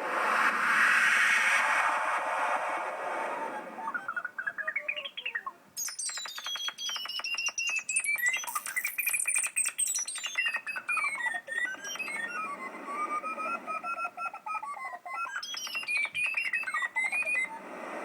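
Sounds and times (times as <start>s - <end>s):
synthesized wind noise: 0.0s - 4.4s, 17.2s - 18.0s
synthesized bird chirps: 3.4s - 17.6s.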